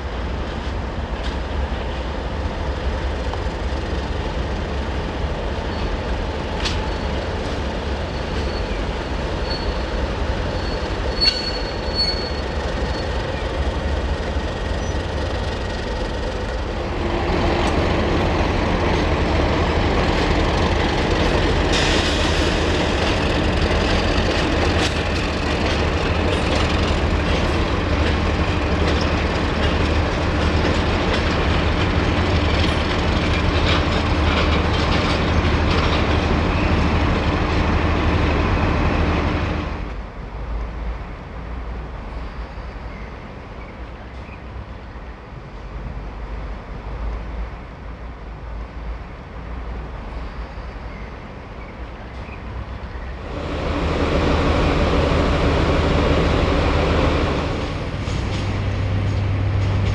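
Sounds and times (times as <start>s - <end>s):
train low drone: 0.0s - 59.9s
train wheels clattering on rails: 0.1s - 40.0s, 52.1s - 59.9s.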